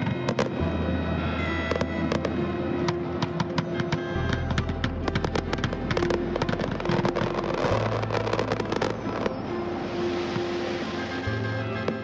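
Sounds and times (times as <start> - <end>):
fireworks banging and crackling: 0.0 - 0.6, 1.6 - 9.5.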